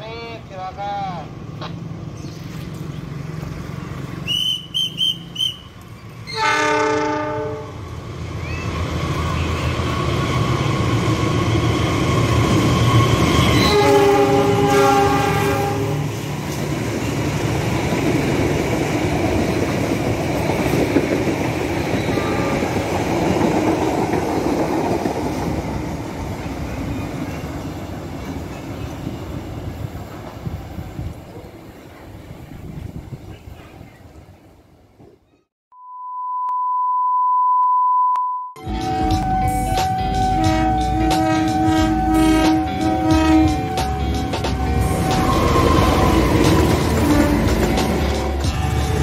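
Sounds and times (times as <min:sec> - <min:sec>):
train rumble and wheel clatter: 0:00.0 - 0:35.2, 0:38.6 - 0:49.0
locomotive horn: 0:06.3 - 0:07.8, 0:13.4 - 0:16.2, 0:22.1 - 0:22.8, 0:38.6 - 0:45.6, 0:47.0 - 0:47.6
short high beeps: 0:35.8 - 0:41.0.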